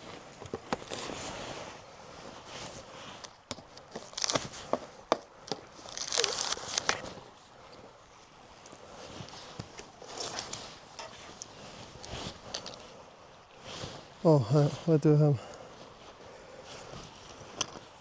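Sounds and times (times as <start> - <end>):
rustling scrapes: 0.0 - 3.2, 5.6 - 7.2, 9.0 - 13.0.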